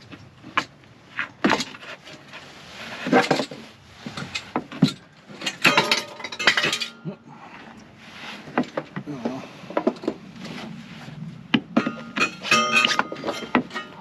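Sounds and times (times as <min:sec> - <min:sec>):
hard objects knocking and clattering: 0:11.5 - 0:14.0.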